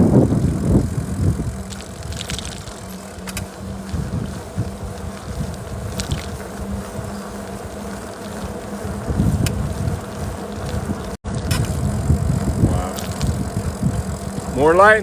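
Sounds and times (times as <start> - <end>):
steady buzzing hum: 0.0 - 15.0
wind buffeting microphone: 0.0 - 15.0.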